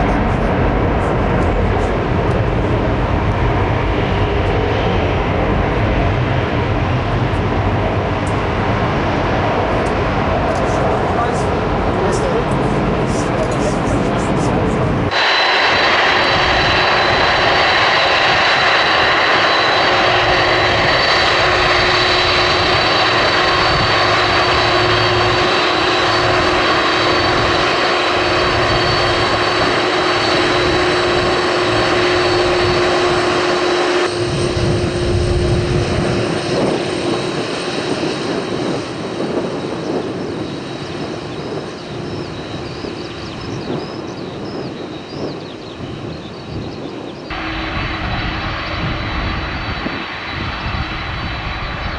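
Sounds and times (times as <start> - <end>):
airliner engines roaring: 0.0 - 51.9.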